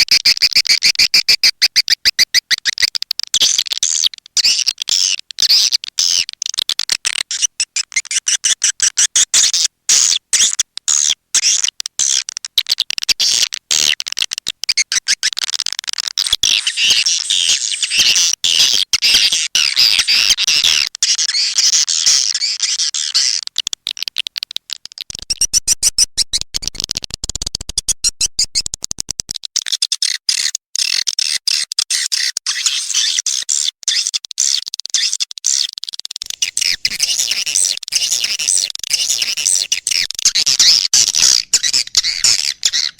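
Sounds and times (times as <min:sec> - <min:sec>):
swiftlets chirping and twittering: 0:36.2 - 0:42.9.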